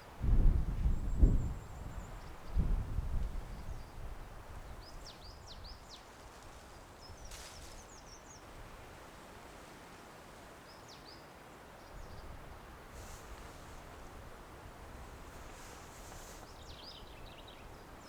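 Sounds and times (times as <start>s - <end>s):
brief rustle: 6.1s - 7.9s
small birds chirping: 16.1s - 18.0s.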